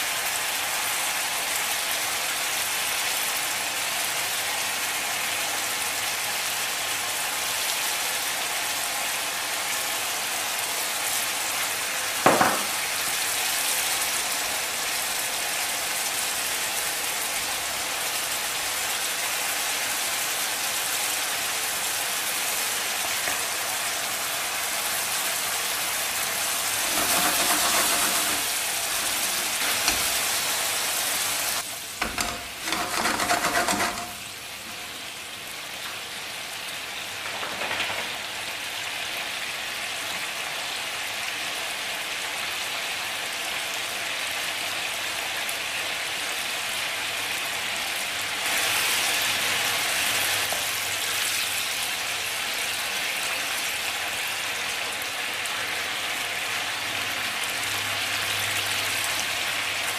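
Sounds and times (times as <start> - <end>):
food sizzling in curry sauce: 0.0 - 59.9
spatula stirring pan: 26.0 - 34.7.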